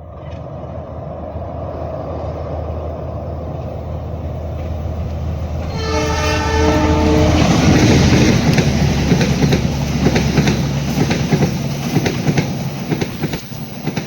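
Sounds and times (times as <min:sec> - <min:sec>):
train rumbling: 0:00.0 - 0:14.0
train horn chord: 0:05.6 - 0:08.9.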